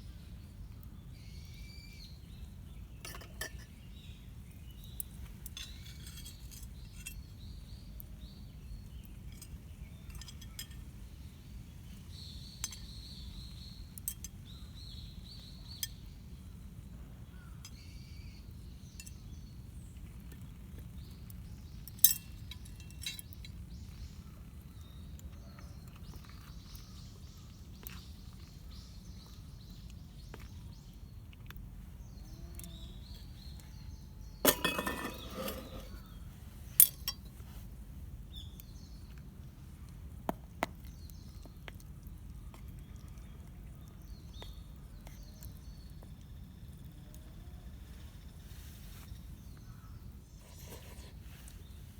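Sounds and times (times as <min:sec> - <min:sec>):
low background noise: 0:00.0 - 0:51.9
metal cookware clinking: 0:34.4 - 0:36.1.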